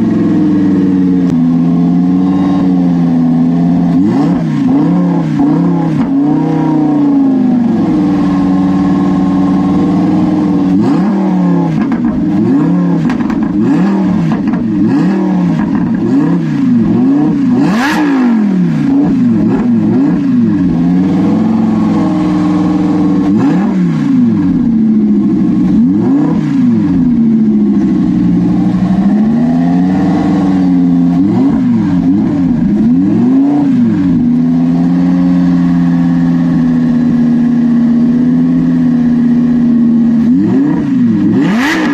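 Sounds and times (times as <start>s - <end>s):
car engine revving: 0.0s - 41.9s
sharp exhaust pop: 11.7s - 14.8s.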